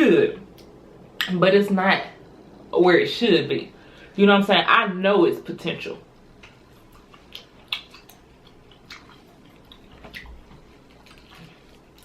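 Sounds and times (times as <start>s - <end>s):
wet chewing and lip-smacking: 6.3s - 12.0s.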